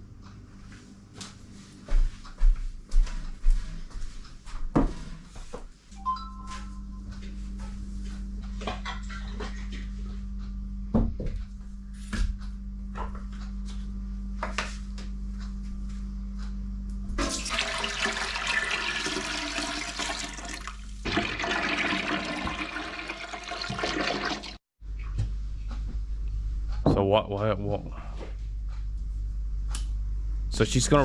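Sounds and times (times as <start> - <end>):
liquid pouring: 17.2 - 24.6.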